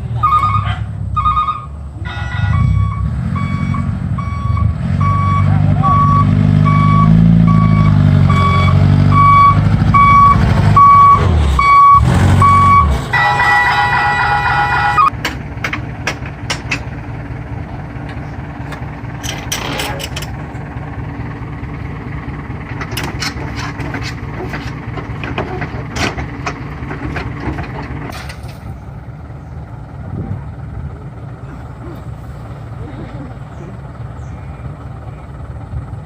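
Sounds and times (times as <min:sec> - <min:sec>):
diesel truck engine running: 0:00.0 - 0:36.0
reversing beeper: 0:00.2 - 0:15.1
knocks and clicks: 0:15.1 - 0:16.9.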